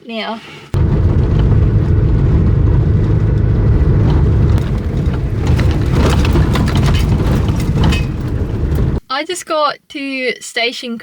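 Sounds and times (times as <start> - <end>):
light rattles and crackles: 0.8 - 9.0
vehicle engine and road rumble: 0.8 - 9.0.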